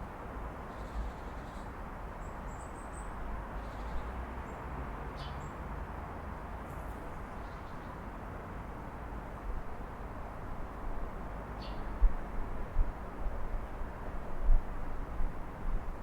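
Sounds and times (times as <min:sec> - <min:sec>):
city traffic hum: 0:00.0 - 0:16.0.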